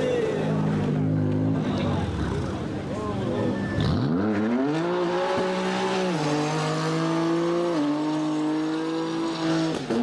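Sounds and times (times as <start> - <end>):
car engine at high revs: 0.7 - 10.0.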